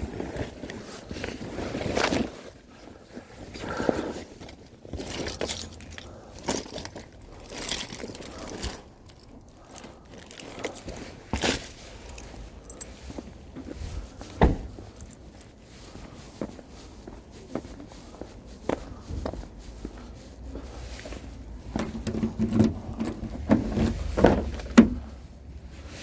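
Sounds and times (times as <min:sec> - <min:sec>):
small hard objects clinking: 0:04.9 - 0:13.0, 0:14.9 - 0:15.5
heavy thump: 0:14.4 - 0:14.8.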